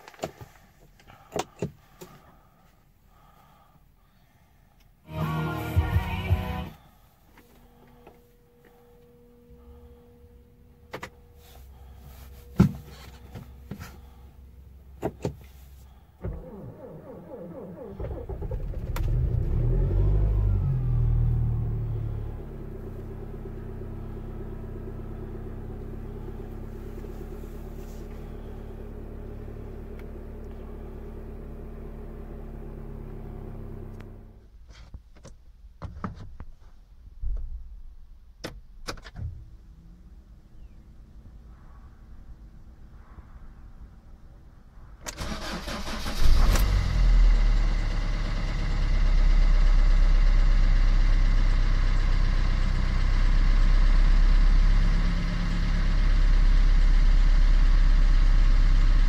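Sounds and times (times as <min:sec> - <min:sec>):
car engine revving then idling: 0:05.1 - 0:06.8, 0:11.4 - 0:34.4, 0:45.2 - 0:59.0.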